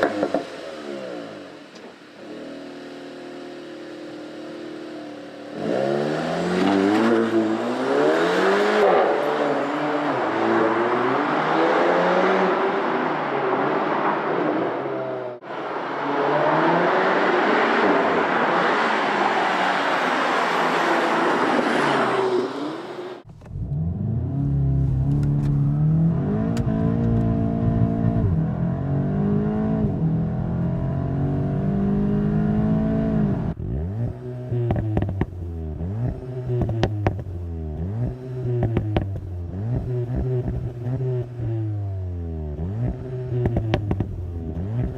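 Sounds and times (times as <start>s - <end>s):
car engine accelerating through gears: 2.3s - 19.9s, 20.5s - 44.9s
exhaust cracks: 33.6s - 41.6s, 42.8s - 44.9s.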